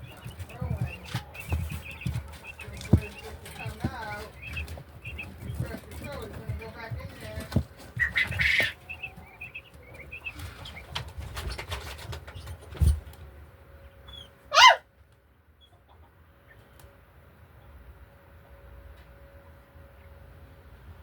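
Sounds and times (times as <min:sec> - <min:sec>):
chickens chirping: 0:00.0 - 0:18.4
chicken squawk: 0:07.9 - 0:11.7, 0:14.0 - 0:14.9.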